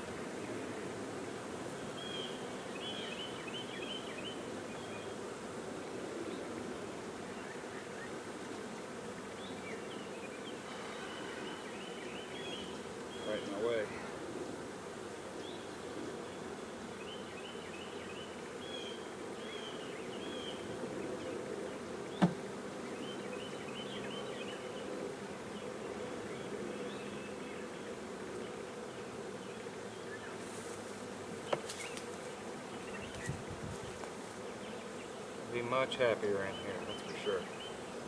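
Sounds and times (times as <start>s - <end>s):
honeybees buzzing: 0.0s - 38.0s
sharp knock: 22.2s - 22.4s.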